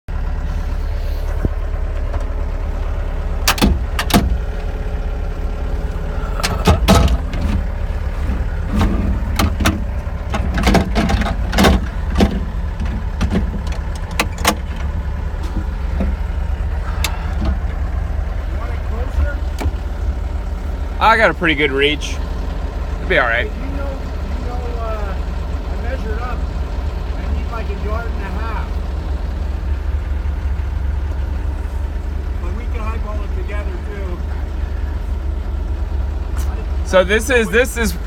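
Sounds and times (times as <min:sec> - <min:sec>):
diesel engine running: 0:00.0 - 0:38.0
metallic clanks and knocks: 0:06.4 - 0:16.2.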